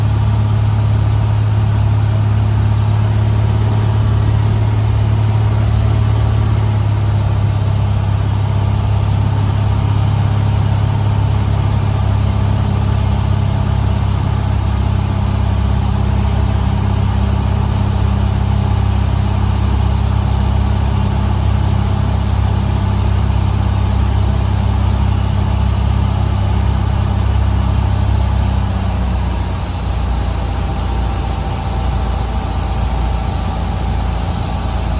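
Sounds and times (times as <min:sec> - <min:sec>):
small plane engine droning: 0:00.0 - 0:34.9.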